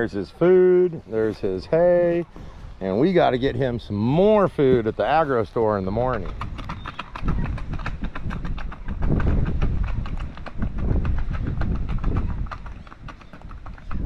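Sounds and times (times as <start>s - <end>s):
horse crunching feed: 4.6s - 14.0s
low rumbling thuds: 5.9s - 14.0s.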